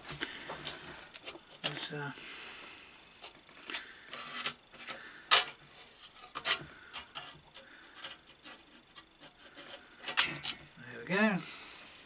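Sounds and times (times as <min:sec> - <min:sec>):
hand tool clicks and scraping: 0:03.6 - 0:10.7.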